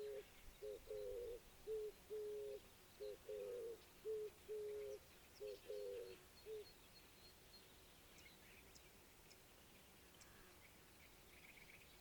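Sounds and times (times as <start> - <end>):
dove cooing: 0.0 - 6.7
small birds chirping: 0.0 - 12.0.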